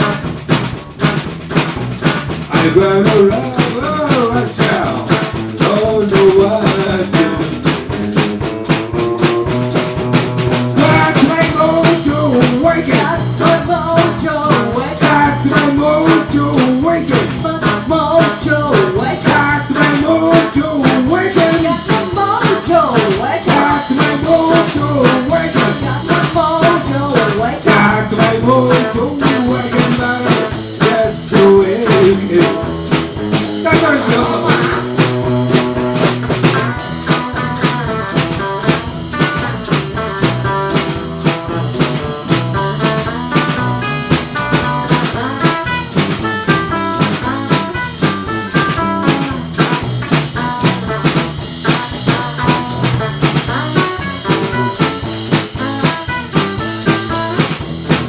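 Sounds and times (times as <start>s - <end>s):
drum kit beat: 0.0s - 58.0s
live blues band playing: 0.0s - 58.0s
sliding bent lead guitar notes: 0.0s - 58.0s.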